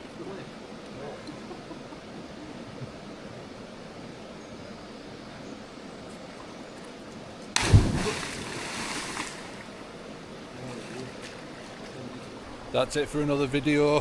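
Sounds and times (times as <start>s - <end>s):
person splashing into river: 7.6s - 10.0s
river rushing: 7.6s - 12.6s.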